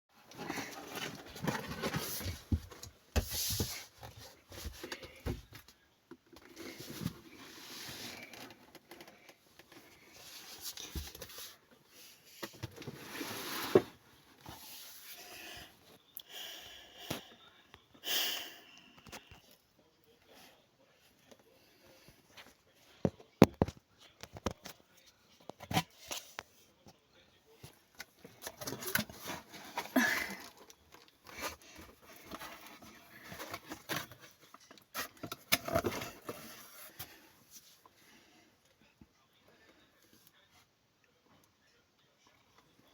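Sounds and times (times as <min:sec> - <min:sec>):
cat rustling and scratching in box: 0:00.2 - 0:05.7, 0:06.4 - 0:15.3, 0:27.6 - 0:38.0.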